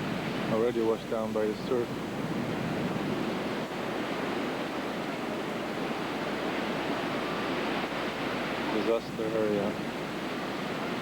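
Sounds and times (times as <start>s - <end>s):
heavy surf: 0.0s - 11.0s
wind: 0.0s - 11.0s.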